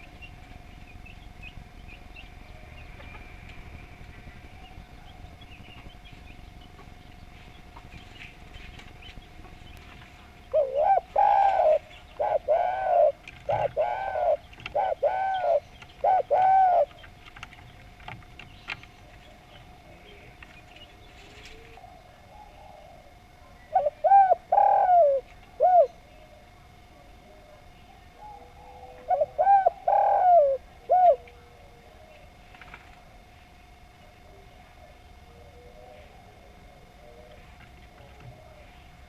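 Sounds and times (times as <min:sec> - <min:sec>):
dove cooing: 0:00.0 - 0:39.0.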